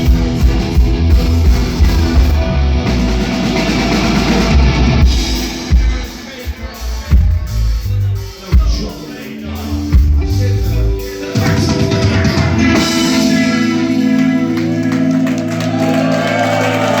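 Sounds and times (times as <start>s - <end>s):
live rock band playing: 0.0s - 17.0s
sustained guitar chord: 10.2s - 15.8s.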